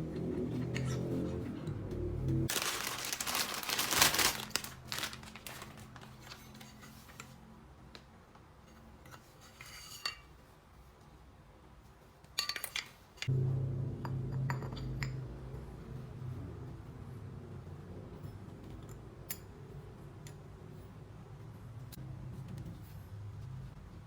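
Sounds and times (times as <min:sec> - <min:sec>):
loud rustling: 0:02.5 - 0:06.4.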